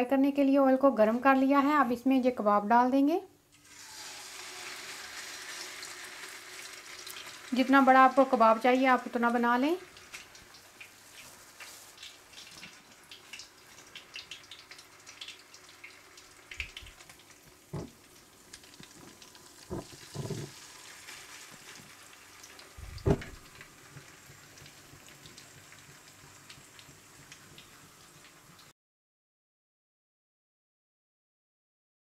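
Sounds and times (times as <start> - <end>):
meat sizzling in oil: 3.6 - 28.7
dull knocks in pan: 17.7 - 18.0, 19.7 - 20.6, 22.9 - 23.5.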